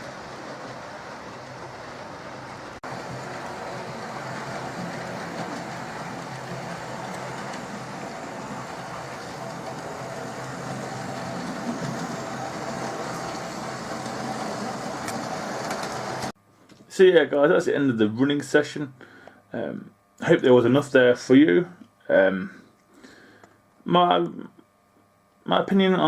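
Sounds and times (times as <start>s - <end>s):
wheels on rails: 0.0s - 16.4s
model train motor whir: 2.6s - 16.3s.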